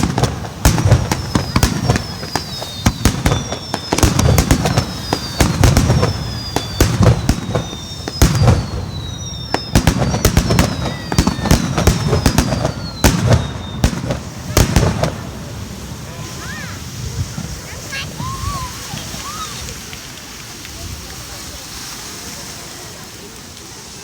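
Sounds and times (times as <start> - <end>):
whistling firework shells: 0.0 - 16.9
low booms: 0.0 - 17.6
fireworks bangs and crackling: 0.0 - 24.0.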